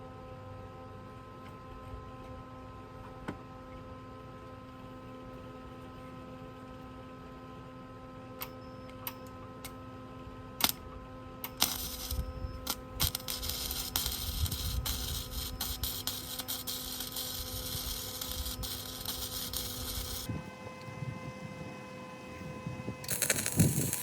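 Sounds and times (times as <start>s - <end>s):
steady hum: 10.5s - 24.0s
power tool working steel: 11.6s - 20.3s, 23.0s - 24.0s.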